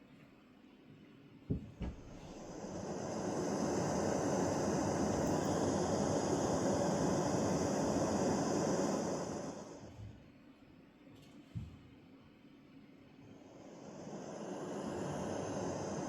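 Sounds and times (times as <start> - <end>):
steady rushing noise: 2.3 - 9.9, 13.5 - 16.0.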